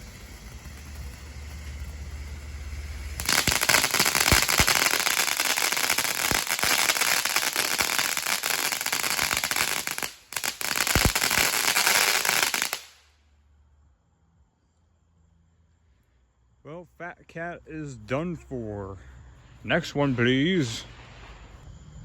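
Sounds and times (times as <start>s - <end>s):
firework crackling pops: 0.0s - 13.2s.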